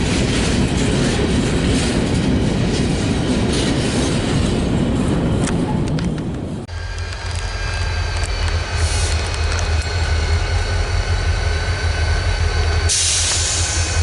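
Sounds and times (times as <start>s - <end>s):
diesel locomotive rumbling: 0.0s - 14.0s
air hiss: 12.9s - 14.0s.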